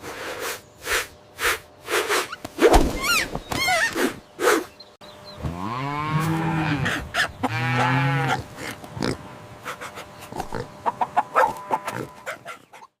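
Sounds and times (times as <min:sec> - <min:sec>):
farm animal calls: 0:03.0 - 0:12.9.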